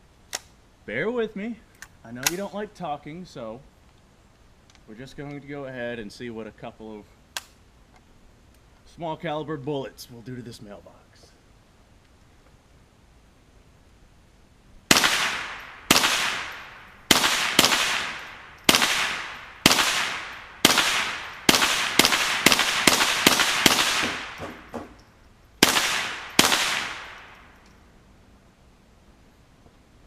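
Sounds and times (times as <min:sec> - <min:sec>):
gunshots with long echo: 0:14.9 - 0:25.0, 0:25.6 - 0:27.6.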